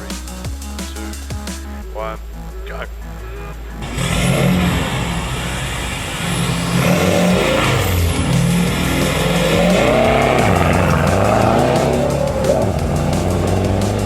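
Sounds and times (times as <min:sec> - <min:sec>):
rally car engine revving: 0:03.3 - 0:14.0.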